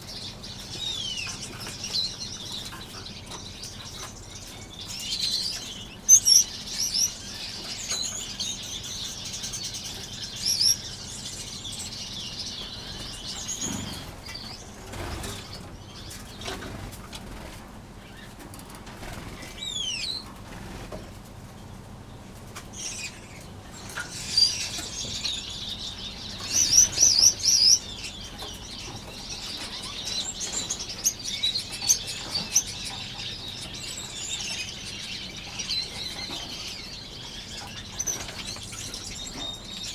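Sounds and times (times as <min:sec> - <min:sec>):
finches chirping: 0:00.0 - 0:16.9, 0:22.7 - 0:39.9
wings fluttering: 0:13.0 - 0:19.7.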